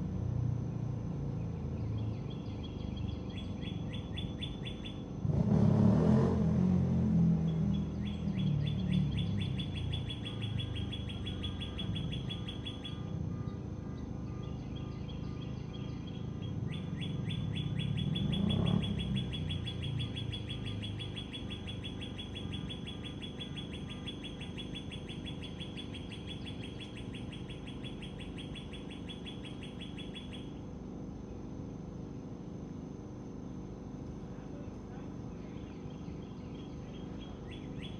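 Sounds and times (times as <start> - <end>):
low engine rumble: 0.0 - 37.9
rapid chirping trill: 1.4 - 5.4, 7.4 - 31.8, 35.2 - 37.9.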